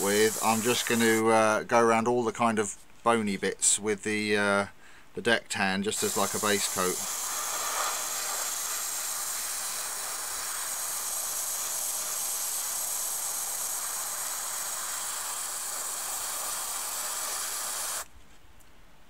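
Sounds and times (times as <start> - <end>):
airbrush air hiss: 0.0 - 1.4, 5.9 - 18.1.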